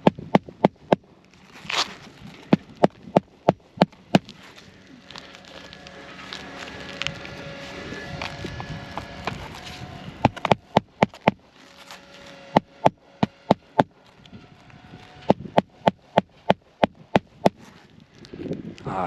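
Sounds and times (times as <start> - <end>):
hammer striking nails: 0.0 - 1.0, 10.2 - 11.4, 12.5 - 14.0, 15.3 - 17.6.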